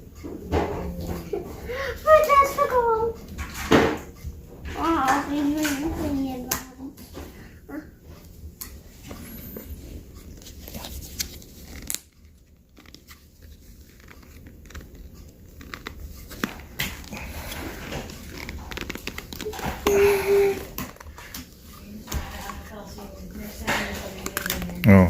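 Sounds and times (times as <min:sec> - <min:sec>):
rustling handling noises: 0:02.1 - 0:19.9.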